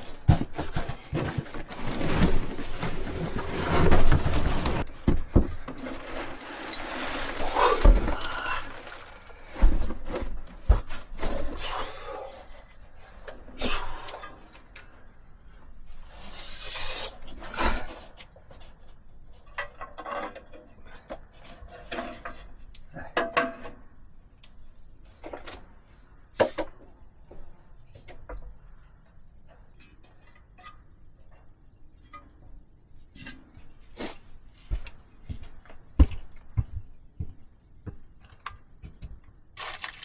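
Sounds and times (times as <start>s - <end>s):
scraping and rubbing: 0.0s - 11.6s.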